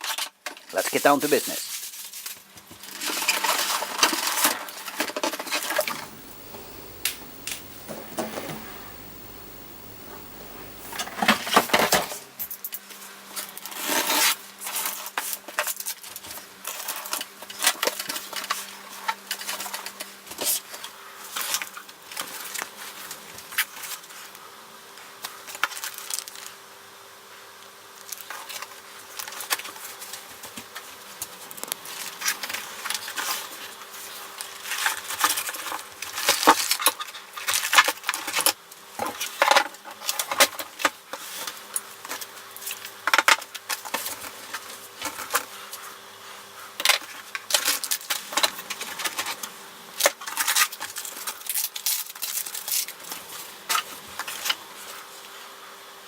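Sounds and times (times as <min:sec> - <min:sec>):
faint steady hum: 0:05.9 - 0:11.8.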